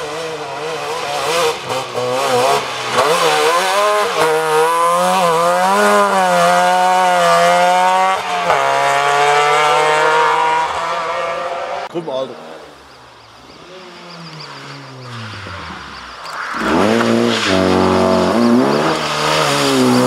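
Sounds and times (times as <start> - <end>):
two-stroke engine revving hard: 0.0 - 11.8, 16.6 - 20.0.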